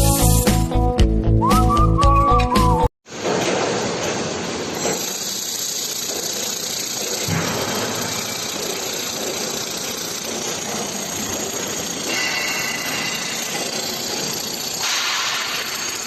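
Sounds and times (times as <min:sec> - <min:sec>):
machine running: 0:03.1 - 0:16.0.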